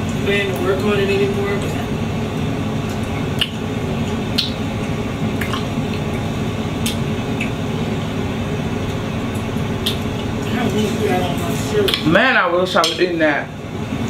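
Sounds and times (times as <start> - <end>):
steady low rumble: 0.0 - 14.0
person chewing fruit: 2.8 - 7.6
mouth smacks and clicks: 3.1 - 3.6, 4.3 - 4.6, 6.8 - 7.6.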